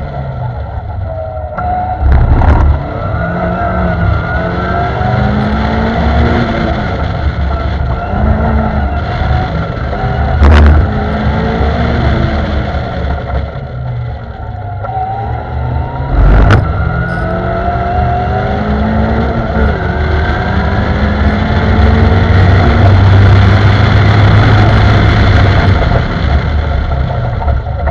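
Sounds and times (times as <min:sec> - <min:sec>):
car engine accelerating hard: 0:00.0 - 0:27.9
wind and road rumble: 0:00.0 - 0:27.9
loud thump: 0:16.2 - 0:16.8.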